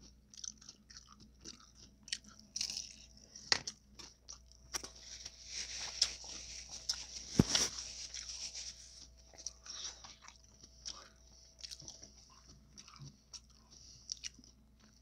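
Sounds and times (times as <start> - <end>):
chewing with crackling clicks: 0.0 - 5.0, 9.0 - 15.0.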